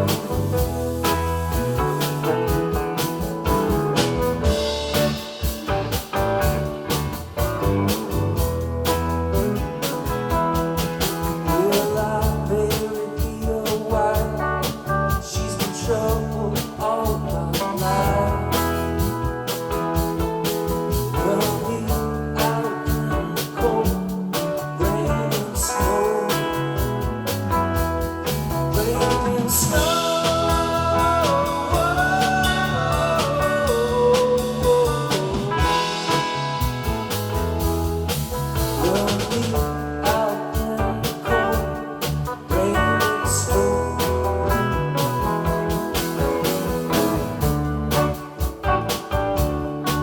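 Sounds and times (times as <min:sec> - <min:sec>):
bending electric guitar lead: 0:00.0 - 0:12.6, 0:25.9 - 0:50.0
blues-rock band playing: 0:00.0 - 0:50.0.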